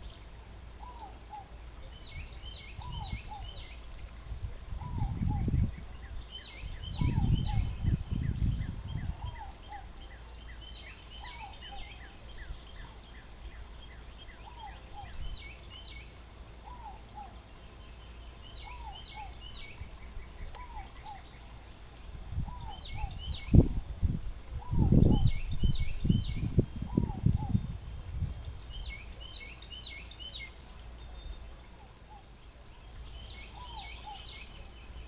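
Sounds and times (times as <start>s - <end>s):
birds chirping: 0.0s - 35.0s
low rumbles on microphone: 4.3s - 9.4s, 22.2s - 28.8s.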